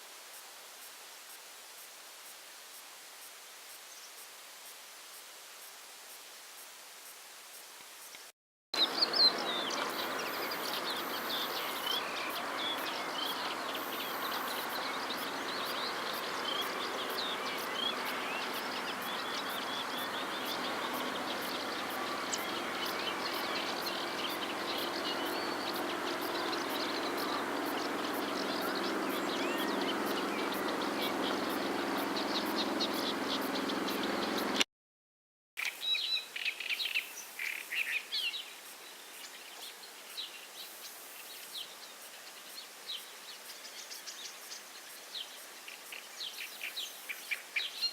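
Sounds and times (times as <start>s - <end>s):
chorus of birds chirping: 8.8s - 34.6s.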